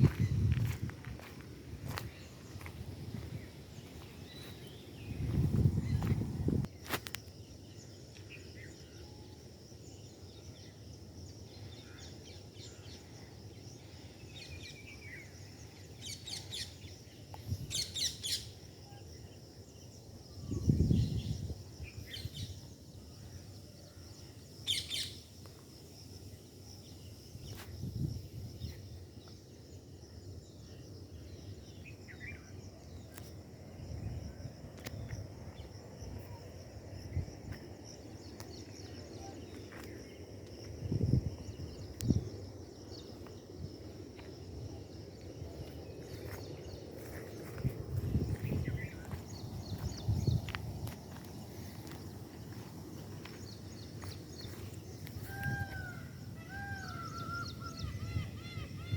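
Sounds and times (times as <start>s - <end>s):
birds chirping: 0.0s - 6.6s.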